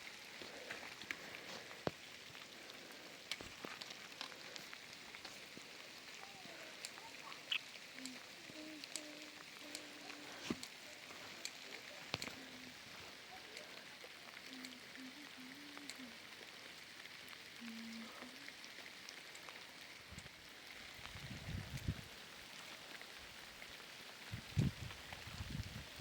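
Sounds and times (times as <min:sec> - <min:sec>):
sharp drips ticking: 0:00.0 - 0:26.0
steady rain: 0:00.0 - 0:26.0.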